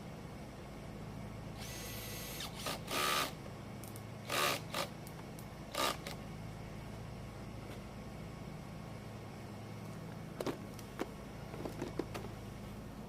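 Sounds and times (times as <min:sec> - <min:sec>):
power screwdriver running: 0:01.6 - 0:03.4, 0:04.3 - 0:04.9.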